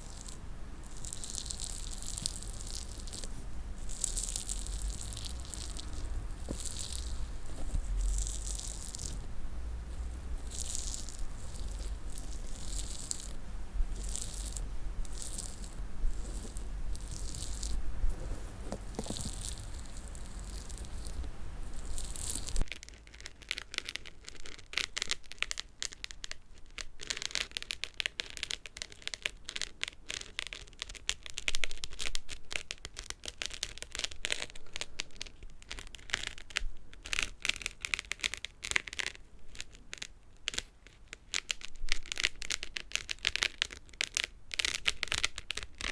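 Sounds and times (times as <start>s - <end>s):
handling small hard objects: 9.9s - 25.3s.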